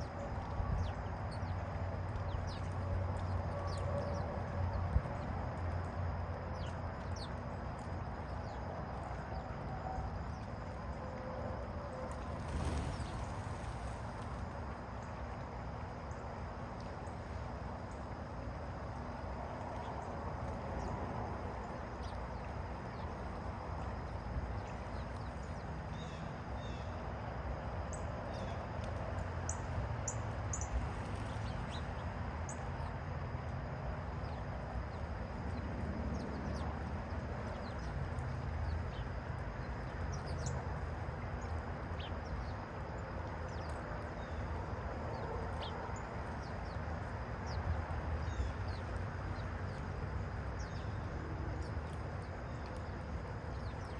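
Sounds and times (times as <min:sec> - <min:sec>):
low outdoor rumble: 0:00.0 - 0:53.9
small birds chirping: 0:12.3 - 0:14.4, 0:29.5 - 0:32.6.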